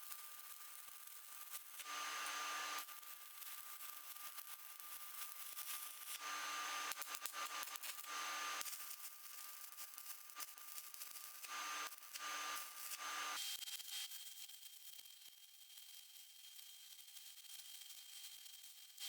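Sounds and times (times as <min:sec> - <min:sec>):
arc welding crackling hiss: 0:11.4 - 0:13.4.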